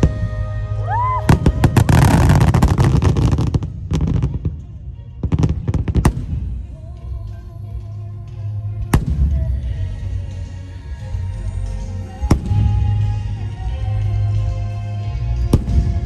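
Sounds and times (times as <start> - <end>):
firework whistle: 0.0 - 3.2
firework bangs and crackling: 0.0 - 7.2, 8.8 - 10.4, 11.8 - 14.4, 15.3 - 16.0
music: 0.0 - 16.0.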